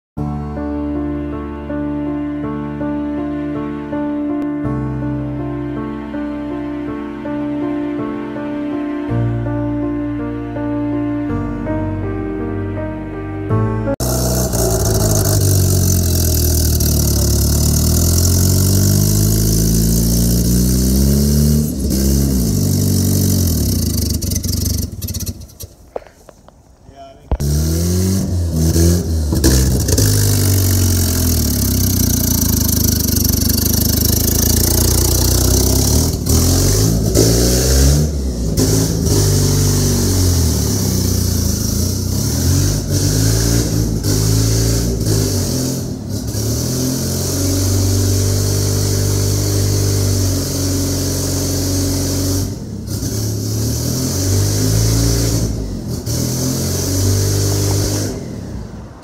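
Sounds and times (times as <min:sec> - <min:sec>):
car engine revving: 0:13.9 - 0:25.8, 0:27.3 - 0:59.0.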